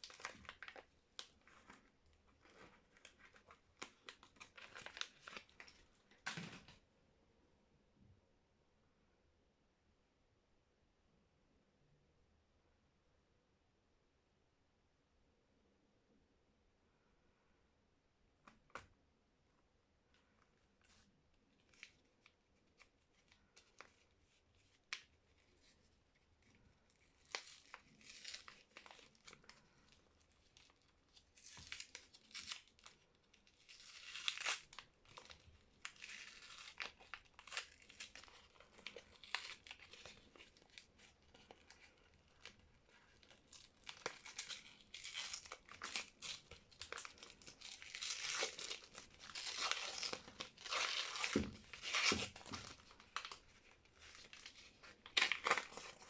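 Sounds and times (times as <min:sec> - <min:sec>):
wrapper tearing and crinkling: 0:00.0 - 0:06.7, 0:26.9 - 0:56.0.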